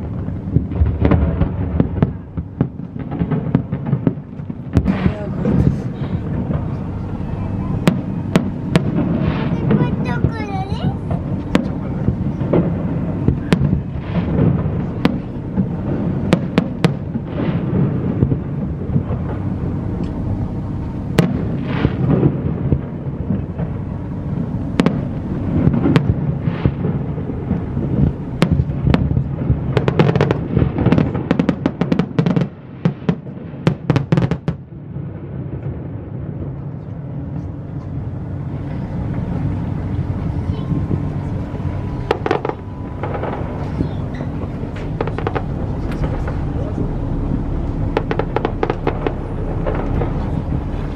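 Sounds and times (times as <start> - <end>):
fireworks bangs: 0.0 - 50.9
steady low rumble: 0.0 - 50.9
fireworks rising whistles: 38.7 - 50.9
rapid cracking reports: 42.1 - 50.9.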